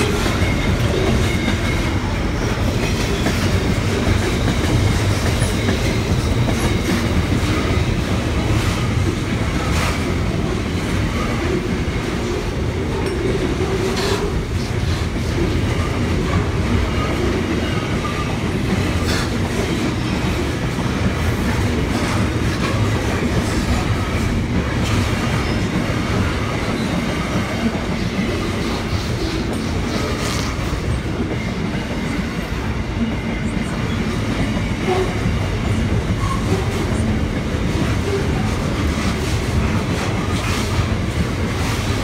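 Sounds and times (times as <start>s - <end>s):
steel wheels rumbling on rail: 0.0s - 42.0s.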